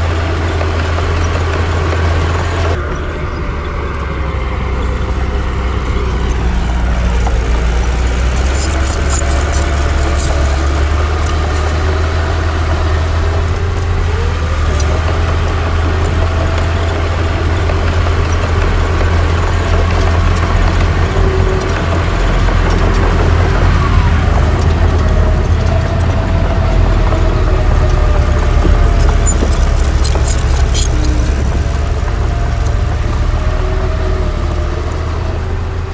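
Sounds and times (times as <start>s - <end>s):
heavy diesel engine rumbling: 0.0s - 35.9s
metallic clicks and clanks: 4.7s - 35.2s.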